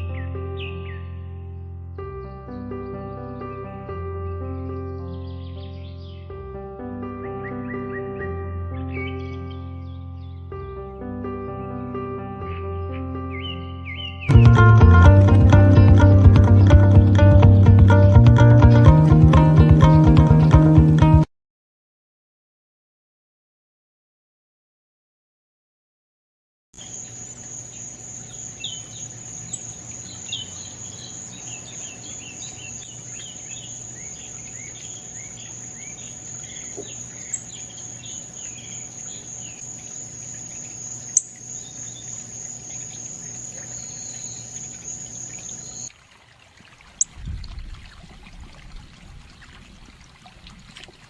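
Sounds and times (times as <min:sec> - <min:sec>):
bird chirps: 0:00.0 - 0:01.2, 0:05.1 - 0:06.3, 0:07.4 - 0:10.4, 0:12.5 - 0:14.3, 0:26.8 - 0:45.9
insect trill: 0:26.8 - 0:45.9.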